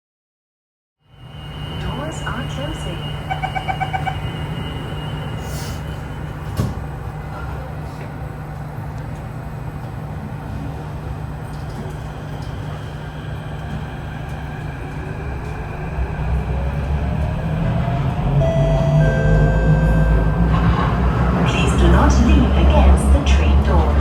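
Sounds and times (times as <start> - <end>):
low train rumble: 1.0 - 24.0
traction motors whining: 1.2 - 7.0.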